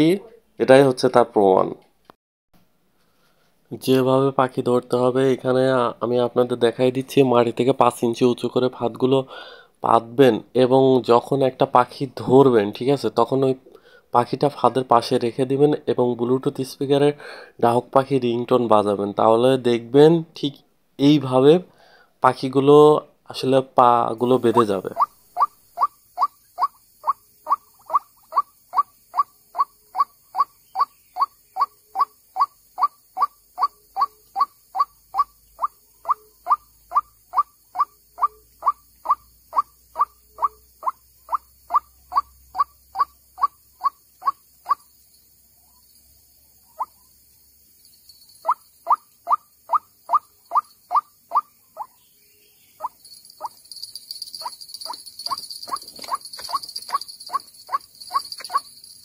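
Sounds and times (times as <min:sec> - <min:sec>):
bird repeated short calls: 0:24.8 - 0:44.8.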